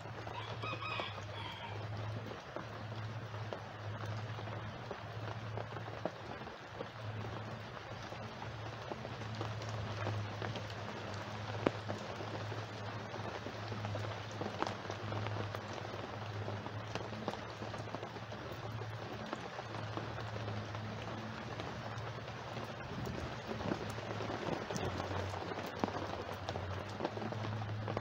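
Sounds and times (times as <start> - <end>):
raindrops tapping: 0.0 - 28.0
steady rain: 0.0 - 28.0.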